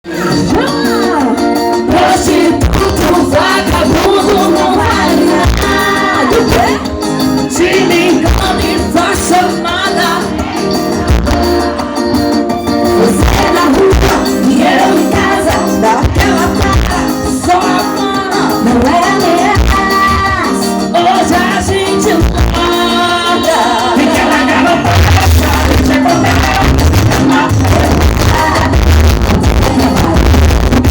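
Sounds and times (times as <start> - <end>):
band playing: 0.0 - 30.9
person singing: 0.1 - 30.9
bass beat: 1.9 - 17.7, 22.2 - 30.9.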